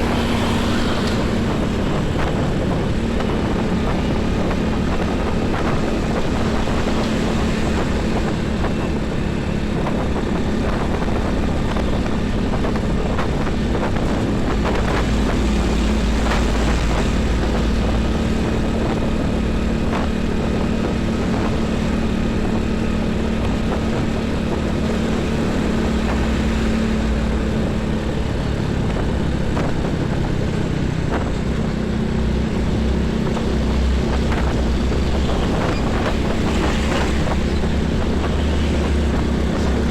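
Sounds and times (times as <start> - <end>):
heavy highway traffic: 0.0 - 39.9
heavy vehicles rumbling: 0.0 - 39.9.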